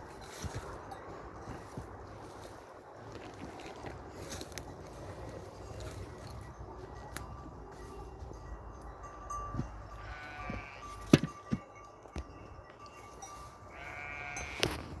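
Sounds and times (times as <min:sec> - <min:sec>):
sheep bleating: 0:09.9 - 0:11.0, 0:13.7 - 0:14.7.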